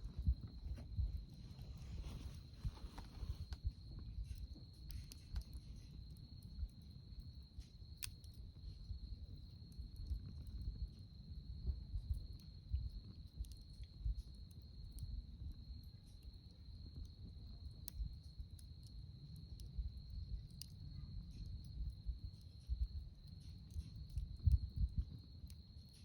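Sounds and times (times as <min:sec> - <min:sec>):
low uneven rumble: 0:00.0 - 0:06.4
campfire crackling and popping: 0:00.0 - 0:26.0.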